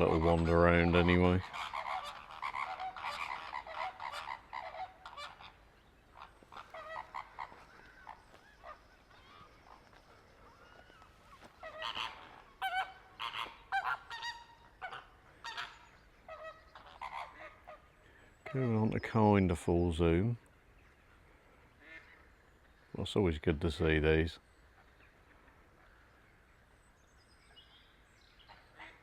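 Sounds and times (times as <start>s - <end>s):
flamingos honking: 0.0s - 19.0s.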